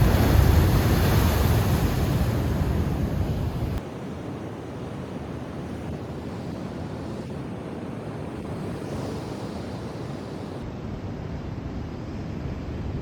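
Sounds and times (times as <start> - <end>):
wind buffeting microphone: 0.0 - 3.8
sea waves washing in: 0.0 - 10.6.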